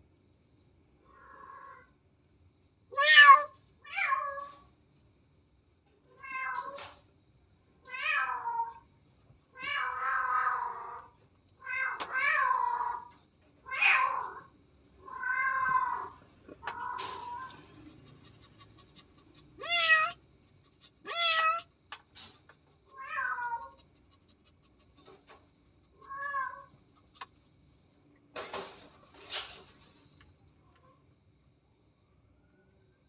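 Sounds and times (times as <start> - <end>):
cat meowing: 3.0 - 4.6, 6.2 - 6.9, 13.7 - 17.7, 19.6 - 20.2, 21.0 - 21.7, 22.9 - 23.8, 26.0 - 26.7.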